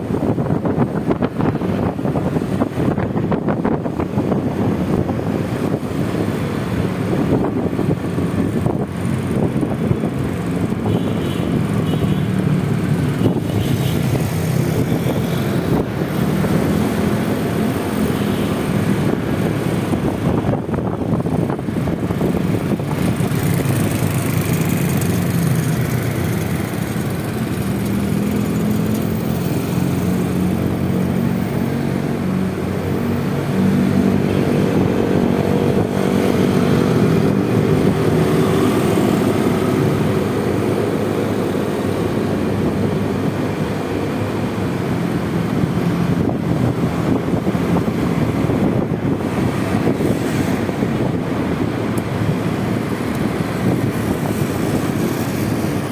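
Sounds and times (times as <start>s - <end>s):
scooter engine running: 20.8s - 29.0s.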